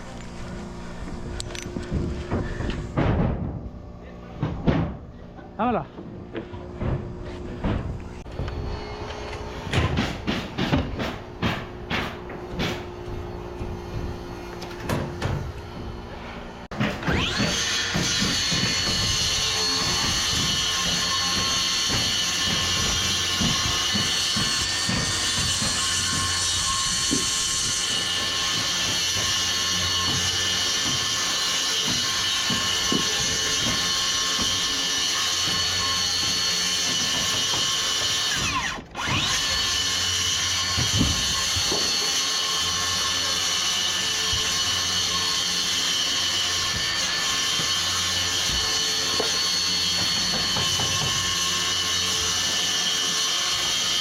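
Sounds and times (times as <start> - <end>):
power tool motor whining: 12.2 - 54.0.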